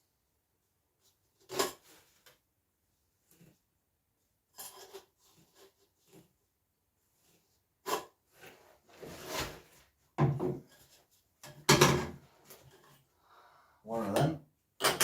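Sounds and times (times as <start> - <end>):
sliding rustle: 8.3 - 9.9.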